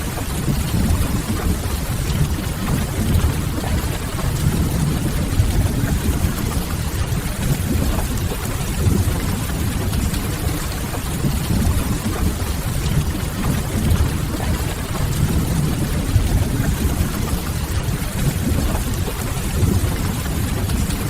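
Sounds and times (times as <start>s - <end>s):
steady rain: 0.0s - 21.0s
heavy low rumble: 0.5s - 10.1s.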